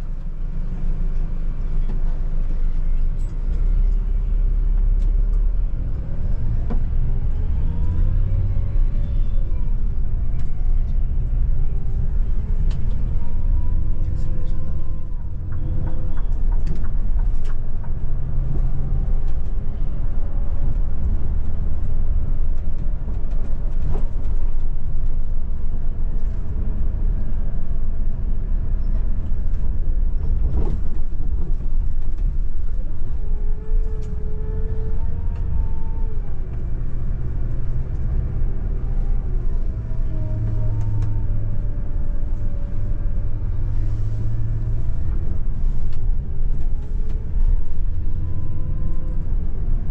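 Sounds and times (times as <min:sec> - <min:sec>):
coach engine and road rumble: 0:00.0 - 0:49.9.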